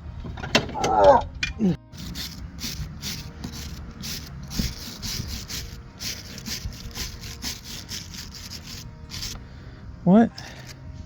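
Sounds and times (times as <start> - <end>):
rhythmic scraping strokes: 0.0 - 11.0.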